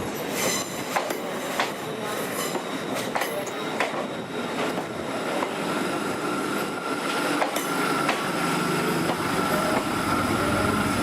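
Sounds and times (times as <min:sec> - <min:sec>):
train wheels clicking over rail joints: 0:07.4 - 0:08.3.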